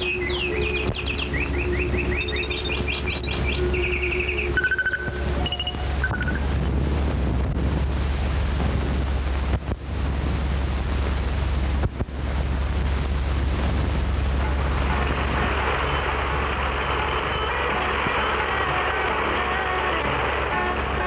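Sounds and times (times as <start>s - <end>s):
low hum: 0.0s - 21.0s
loud rushing noise: 14.1s - 21.0s.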